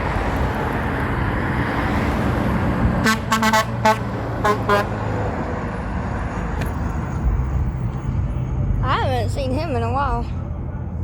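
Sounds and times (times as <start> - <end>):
road noise: 0.0 - 11.0
truck engine rumble: 0.0 - 11.0
truck horn short toots: 3.0 - 4.9.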